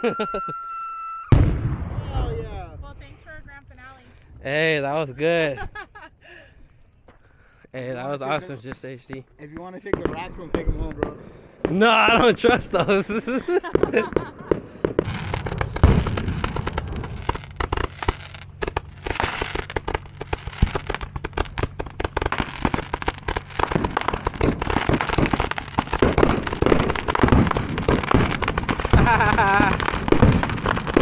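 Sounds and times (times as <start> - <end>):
heavy firework bangs: 1.3 - 2.8, 9.9 - 31.0
fireworks crackling and popping: 8.6 - 31.0.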